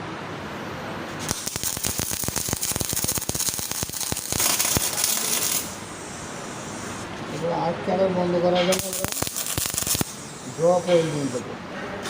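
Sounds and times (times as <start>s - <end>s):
welding arc crackling and hissing: 1.2s - 7.1s, 8.7s - 11.4s.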